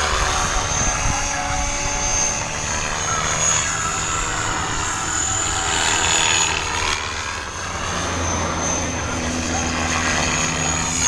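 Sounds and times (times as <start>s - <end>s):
wind on microphone: 0.0s - 7.1s
rc helicopter motor whine: 0.0s - 11.0s
rotor blades whooshing: 0.0s - 11.0s.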